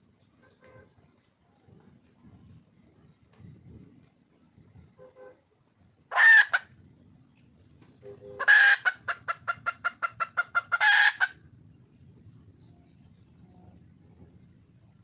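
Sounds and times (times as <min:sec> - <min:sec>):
hen calling and clucking: 0:06.1 - 0:06.9, 0:08.0 - 0:11.5.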